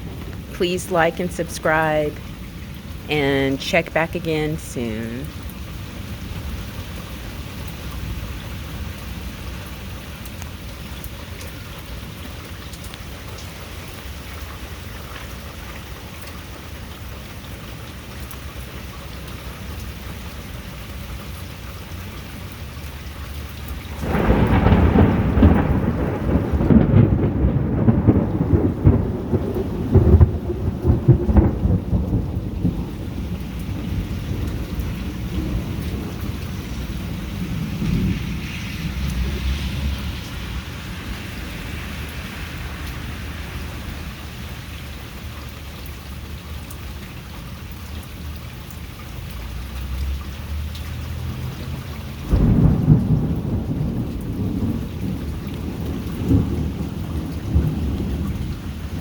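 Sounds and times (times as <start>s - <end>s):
thunder clap and rumble: 23.9s - 45.4s, 51.3s - 59.0s
heavy rain hissing: 24.0s - 29.0s, 31.6s - 46.3s.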